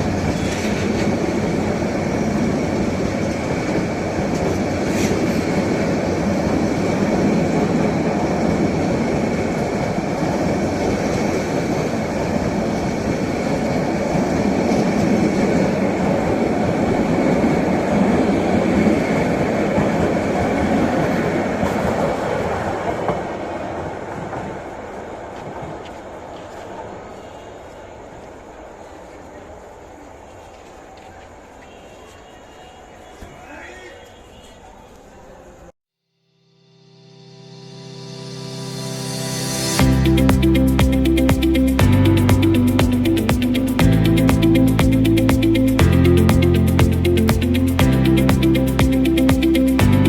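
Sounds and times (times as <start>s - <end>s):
train rumbling on rails: 0.0s - 32.1s.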